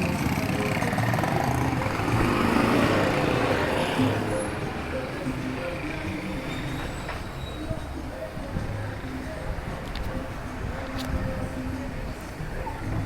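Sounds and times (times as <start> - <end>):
motor vehicle passing: 0.0 - 7.4
background music: 0.0 - 13.0
voices: 0.0 - 13.0.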